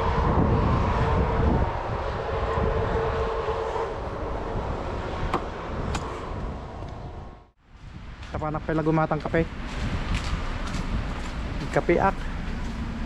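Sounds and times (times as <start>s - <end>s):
hum: 0.0s - 8.2s.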